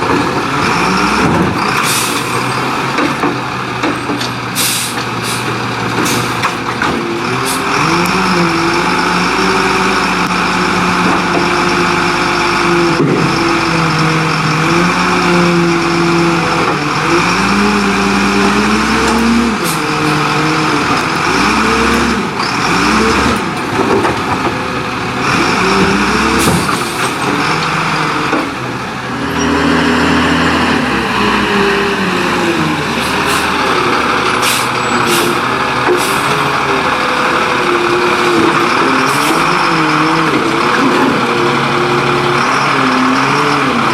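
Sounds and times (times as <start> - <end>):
garbage truck engine revving: 0.0 - 43.9.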